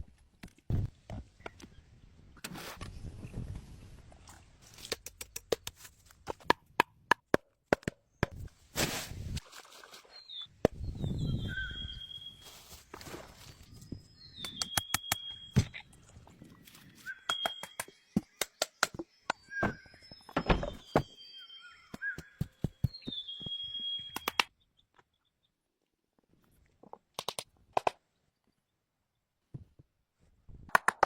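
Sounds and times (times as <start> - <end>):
bird chirps: 10.1 - 12.6, 13.5 - 25.6.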